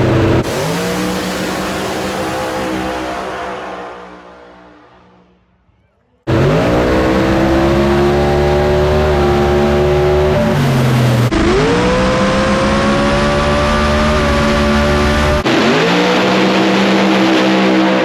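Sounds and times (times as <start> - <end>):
race car engine at full throttle: 0.0 - 18.0.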